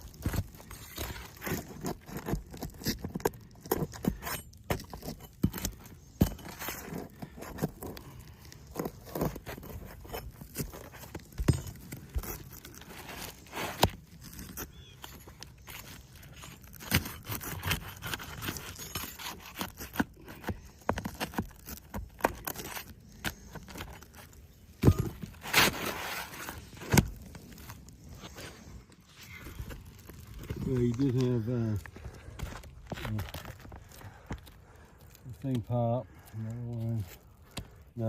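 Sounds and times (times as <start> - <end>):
scraping on shingle roof: 0.0 - 38.0
footsteps on shingle roof: 23.5 - 35.1.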